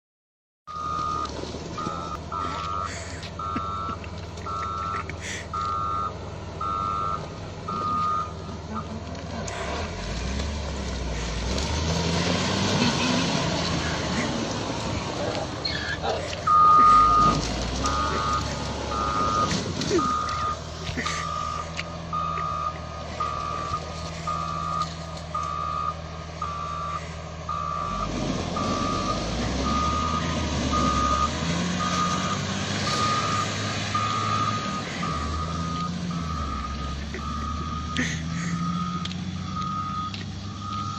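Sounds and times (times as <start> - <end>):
reversing alarm beeping: 0.7 - 8.9, 15.7 - 40.9
engine running: 0.7 - 40.9.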